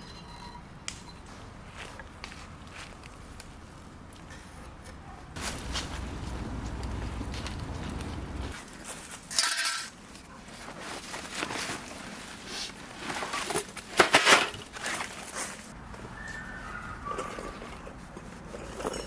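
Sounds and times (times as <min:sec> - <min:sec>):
gear rustling and crunching: 0:05.4 - 0:12.2.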